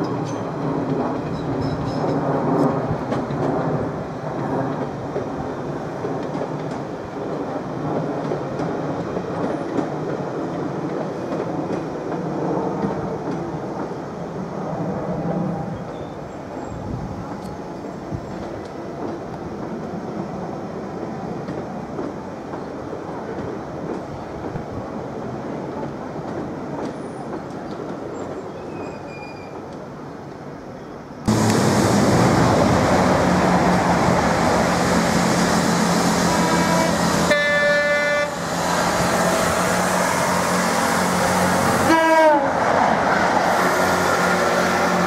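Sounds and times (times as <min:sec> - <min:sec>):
diesel train approaching: 0:00.0 - 0:45.0
train rumbling along track: 0:00.0 - 0:45.0
train horn: 0:36.2 - 0:38.4, 0:39.0 - 0:42.6.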